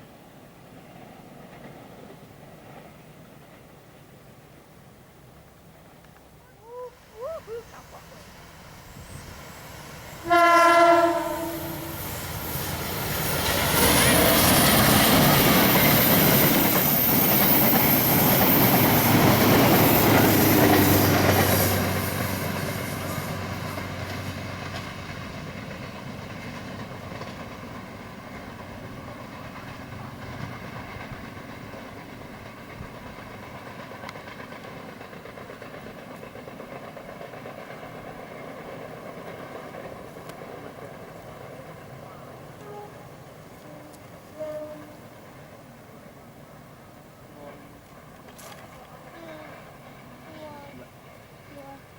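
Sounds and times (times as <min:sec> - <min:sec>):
train wheels on rails with hiss: 0:00.0 - 0:51.9
train horn: 0:10.2 - 0:12.0, 0:42.6 - 0:45.1.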